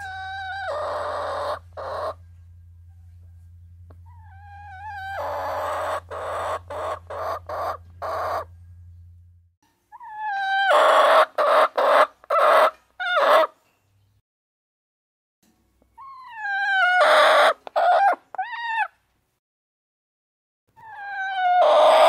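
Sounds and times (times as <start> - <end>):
hen squawking: 0.0 - 2.2, 4.0 - 8.5.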